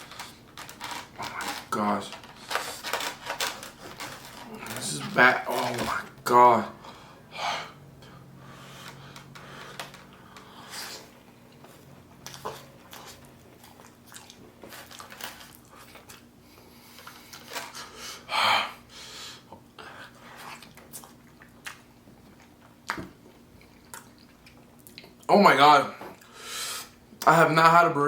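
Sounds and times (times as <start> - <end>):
chewing and biting food: 8.6 - 17.9, 20.2 - 25.3.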